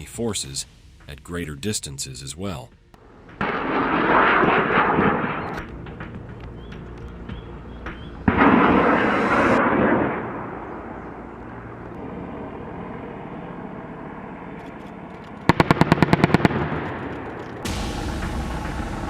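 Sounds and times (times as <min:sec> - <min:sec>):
loud blast with rushing tail: 0:00.0 - 0:01.9, 0:02.8 - 0:06.3, 0:08.2 - 0:10.6, 0:17.6 - 0:19.0
low rumble: 0:00.0 - 0:14.6, 0:17.6 - 0:19.0.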